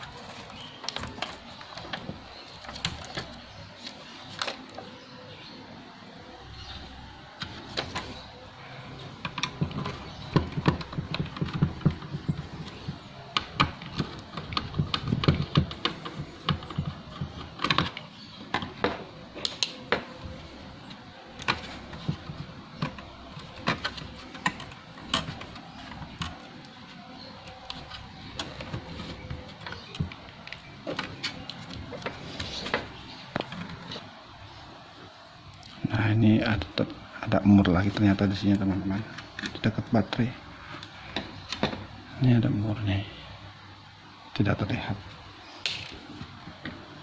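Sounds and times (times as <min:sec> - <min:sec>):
laptop parts clicking and knocking: 0:00.0 - 0:04.9, 0:09.0 - 0:34.1, 0:40.8 - 0:41.9.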